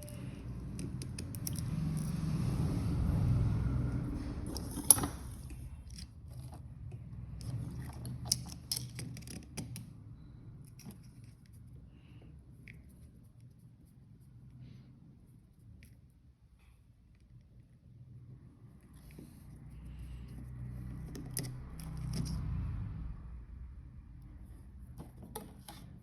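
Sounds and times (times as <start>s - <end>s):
clicks and scrapes of objects: 0.0s - 2.2s, 4.4s - 9.9s, 10.6s - 13.7s, 18.7s - 22.6s.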